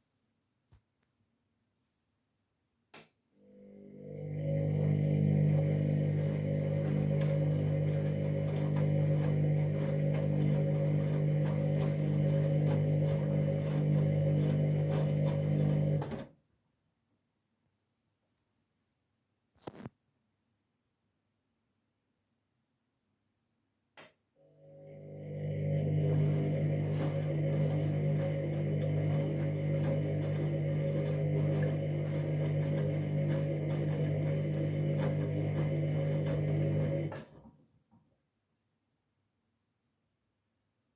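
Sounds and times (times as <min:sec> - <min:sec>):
washing machine humming: 0:03.4 - 0:16.3, 0:24.4 - 0:37.5
washing machine drum tumbling: 0:25.7 - 0:37.1.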